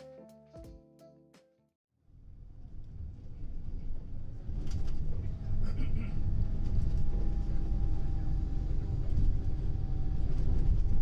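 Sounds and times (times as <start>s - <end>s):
vehicle ride rumble: 2.3s - 11.0s.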